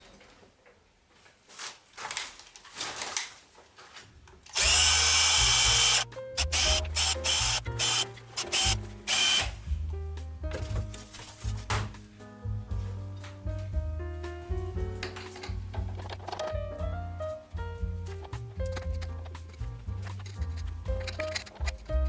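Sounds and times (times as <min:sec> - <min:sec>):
power tool running in bursts: 0:04.5 - 0:09.5
music with stepping bass line: 0:12.5 - 0:15.0.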